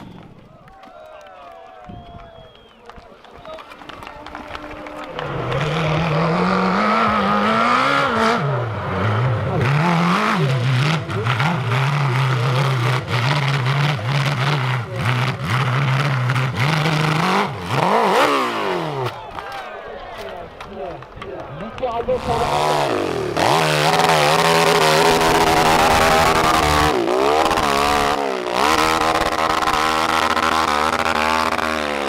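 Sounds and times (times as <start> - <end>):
motocross motorcycle engine revving: 4.3 - 19.4, 21.6 - 32.0.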